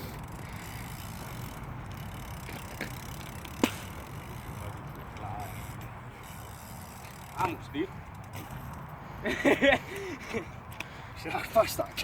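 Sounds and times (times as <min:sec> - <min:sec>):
bike wheels rumbling: 0:00.0 - 0:12.0
bike landing clack: 0:00.3 - 0:07.5.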